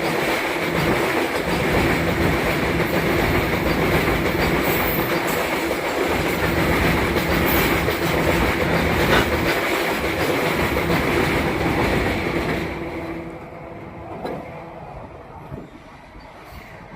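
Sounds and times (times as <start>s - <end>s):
wagon wheels clattering over rail joints: 0.0s - 13.0s.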